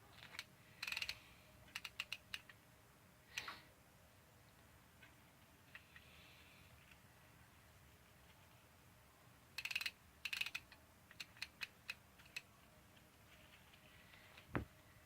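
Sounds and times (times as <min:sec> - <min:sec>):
ratchet wrench clicking: 0:00.8 - 0:02.5, 0:09.6 - 0:12.4.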